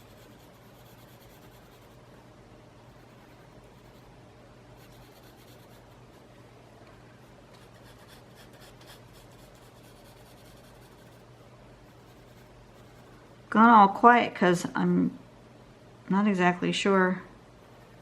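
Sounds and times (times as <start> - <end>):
pencil scratching on paper: 0.0 - 2.0, 2.9 - 4.1, 4.8 - 6.0, 7.6 - 11.2, 11.9 - 13.2.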